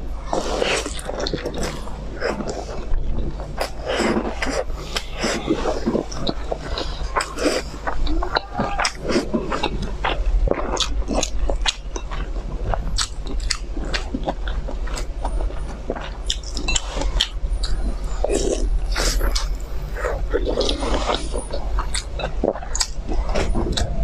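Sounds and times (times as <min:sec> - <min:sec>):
steady low hum: 0:00.0 - 0:24.0
wet chewing and smacks: 0:00.3 - 0:24.0.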